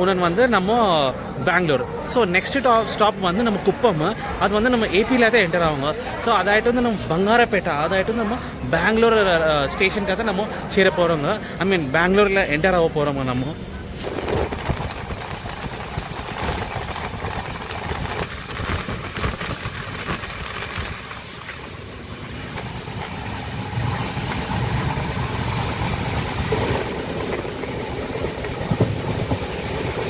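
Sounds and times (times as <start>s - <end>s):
train wheels rumbling and clicking: 13.7s - 30.0s.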